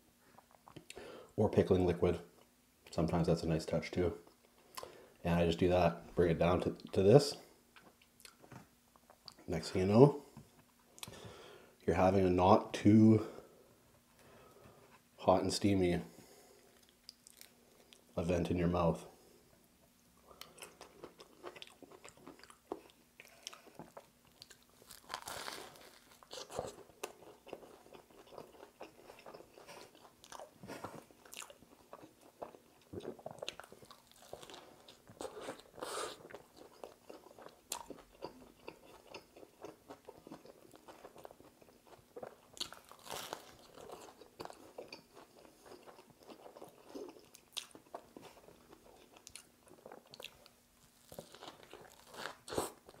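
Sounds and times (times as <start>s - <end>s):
person chewing crunchy sandwich: 16.6s - 18.1s, 20.2s - 53.0s.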